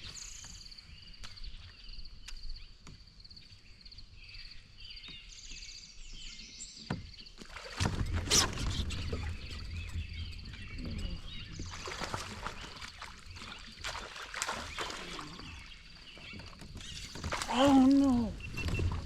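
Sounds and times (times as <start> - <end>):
water splashing around kayak: 6.2 - 19.0.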